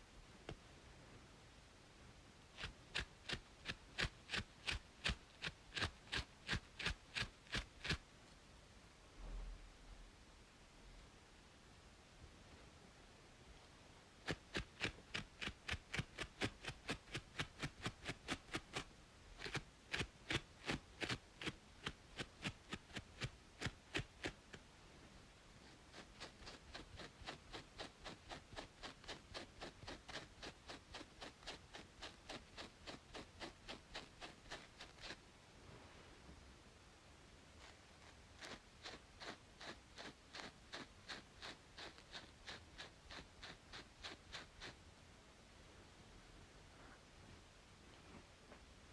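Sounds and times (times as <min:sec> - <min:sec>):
rapid scratching on scalp: 0:02.5 - 0:08.0, 0:14.2 - 0:24.6, 0:25.6 - 0:35.2, 0:37.6 - 0:44.8.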